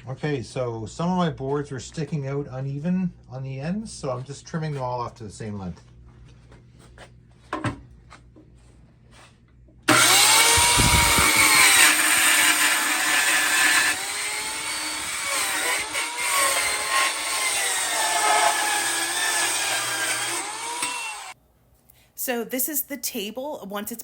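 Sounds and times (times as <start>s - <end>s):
electric power saw cutting wood: 9.9s - 21.4s.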